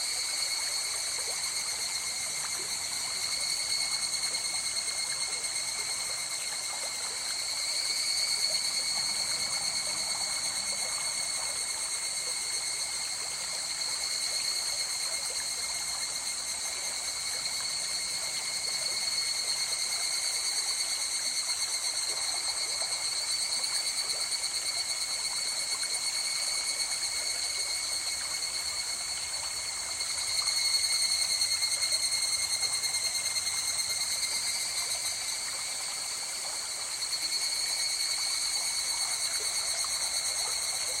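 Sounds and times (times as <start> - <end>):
insects trilling: 0.0 - 41.0
stream flowing: 0.0 - 41.0.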